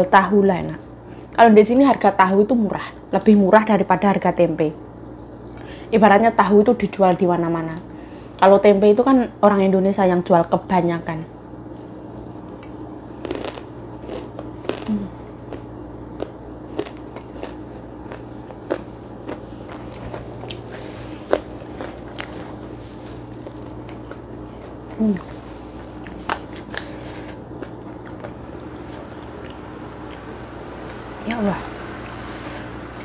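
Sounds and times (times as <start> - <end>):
steady low hum: 0.0 - 33.0
chewing with crisp crunches: 4.9 - 5.7, 11.6 - 33.0
person humming: 14.9 - 15.2, 25.0 - 25.4.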